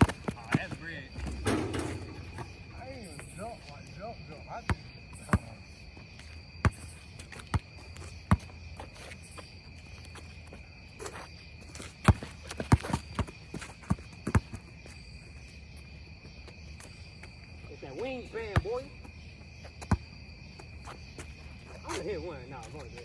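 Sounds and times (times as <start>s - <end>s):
basketball bouncing: 0.0s - 3.4s
crickets chirping: 0.0s - 23.0s.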